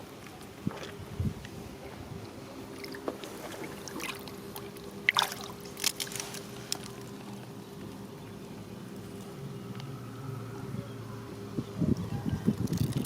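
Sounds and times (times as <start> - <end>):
faint steady hum: 0.0 - 13.0
water splashing and trickling: 2.2 - 8.0.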